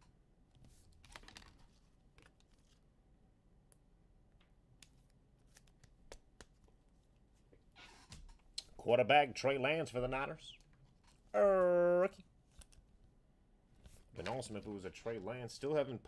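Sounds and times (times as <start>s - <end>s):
trading cards clicking and rustling: 0.9s - 2.8s, 4.8s - 6.8s.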